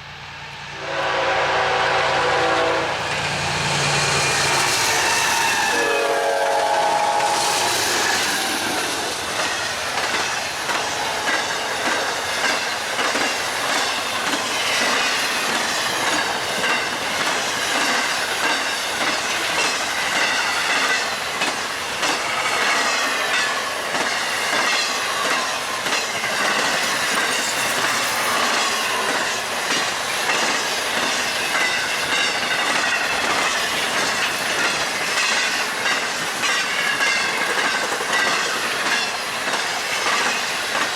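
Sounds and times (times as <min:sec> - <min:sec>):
freight train rolling: 0:00.0 - 0:40.9
locomotive horn blast: 0:00.8 - 0:03.0, 0:05.7 - 0:07.6
wheels clacking over rail joints: 0:07.9 - 0:40.9.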